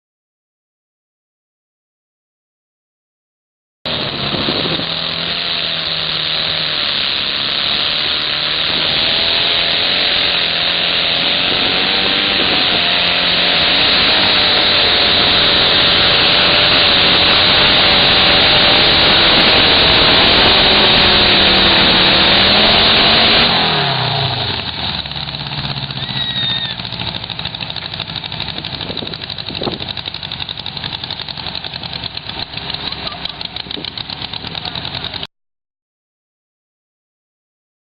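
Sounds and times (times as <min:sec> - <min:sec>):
riding lawn mower engine: 0:03.9 - 0:35.3.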